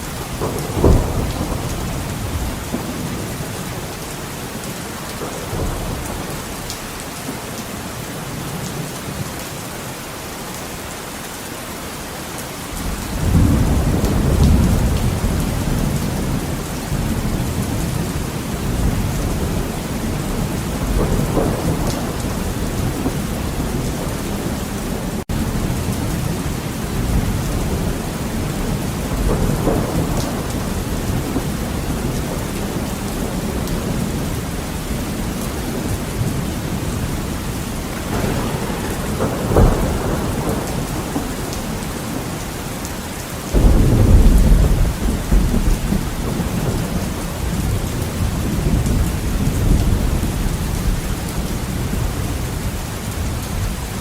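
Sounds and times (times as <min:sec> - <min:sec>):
thunder rumbling: 0:00.0 - 0:07.4, 0:12.8 - 0:54.0
heavy rain on a window: 0:00.0 - 0:54.0
sharp thunder crack: 0:00.3 - 0:03.2, 0:37.7 - 0:42.3, 0:43.5 - 0:47.8.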